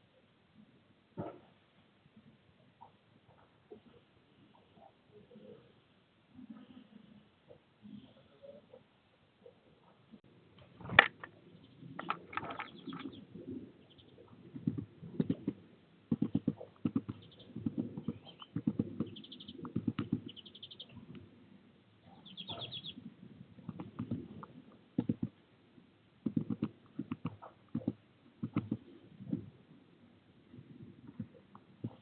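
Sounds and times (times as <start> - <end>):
bird tapping and scrabbling: 10.8 - 11.4, 12.0 - 13.2, 14.5 - 20.5, 23.6 - 25.4, 26.2 - 29.5
high bird chirps: 17.2 - 21.0, 22.2 - 23.0.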